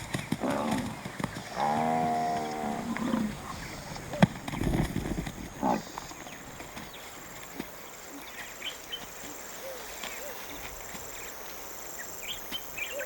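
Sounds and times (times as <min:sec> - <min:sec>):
buffalo grunting: 0:00.3 - 0:06.8.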